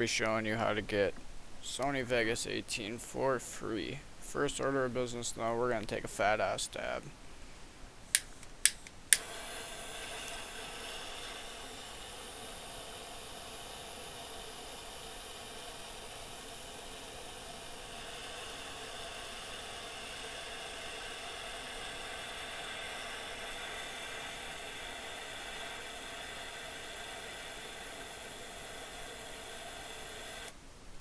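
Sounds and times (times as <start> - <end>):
torch flame hissing: 8.0 - 30.6
torch lighter clicking: 8.1 - 30.6.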